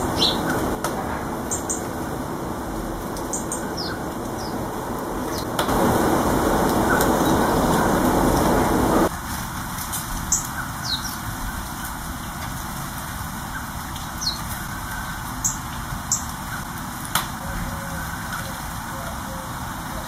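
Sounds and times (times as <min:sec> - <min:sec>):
small birds chirping: 0:00.0 - 0:02.4, 0:03.0 - 0:09.1, 0:10.2 - 0:12.0, 0:13.4 - 0:16.8.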